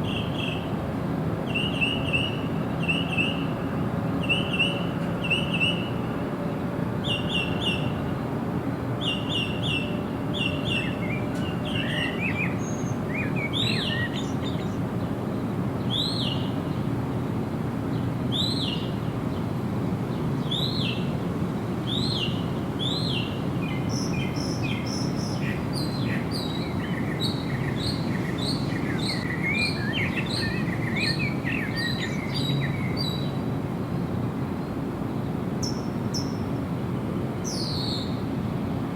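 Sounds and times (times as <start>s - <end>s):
low rushing background noise: 0.0s - 38.9s
songbirds chirping: 9.0s - 17.0s, 21.8s - 33.5s.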